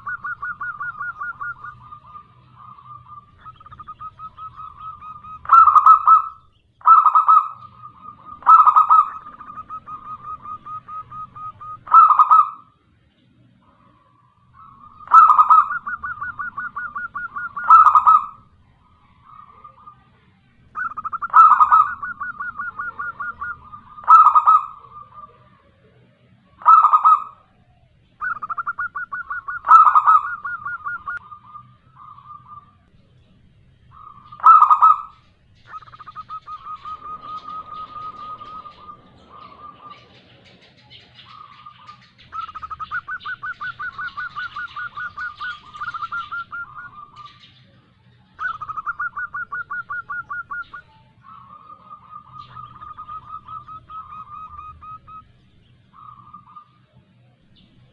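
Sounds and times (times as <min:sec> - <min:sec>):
dove cooing: 0:00.0 - 0:12.8, 0:13.6 - 0:57.9
dove rattling trills: 0:00.0 - 0:57.9.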